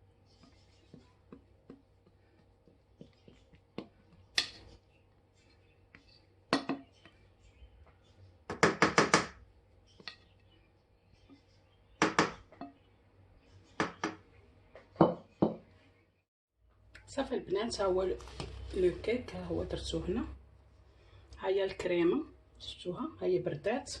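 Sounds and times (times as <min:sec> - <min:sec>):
utensil scraping a mixing bowl: 0:00.0 - 0:06.4.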